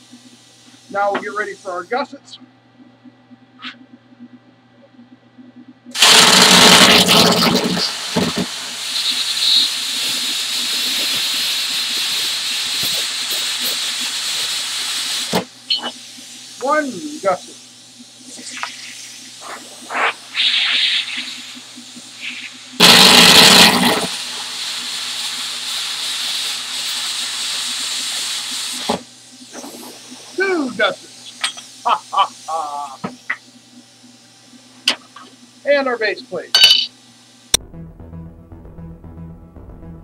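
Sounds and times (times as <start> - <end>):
plasma cutter hissing air: 5.9 - 33.4.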